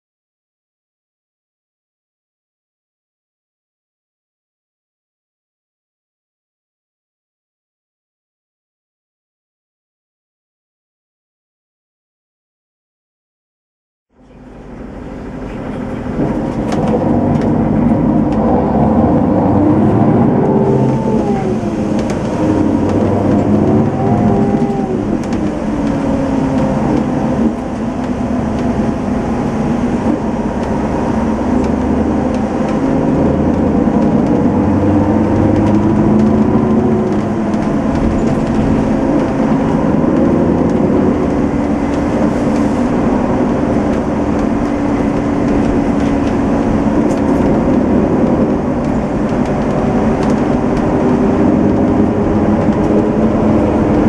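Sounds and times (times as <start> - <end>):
coach engine running: 14.2 - 54.0.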